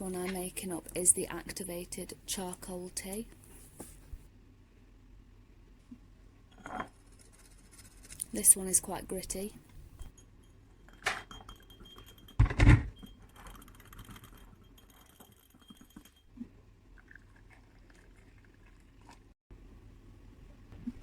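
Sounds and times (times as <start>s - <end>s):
utensils clinking and scraping in cup: 10.0s - 16.3s.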